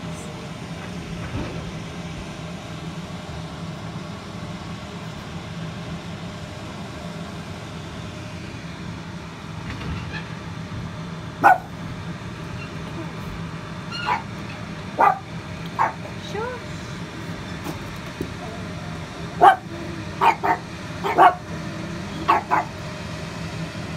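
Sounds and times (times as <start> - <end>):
combine harvester running: 0.0 - 23.9.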